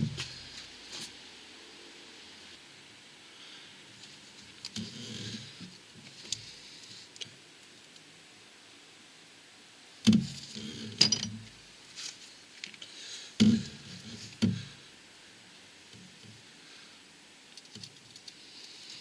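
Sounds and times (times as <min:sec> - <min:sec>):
metal tools clanking: 0:11.0 - 0:11.4.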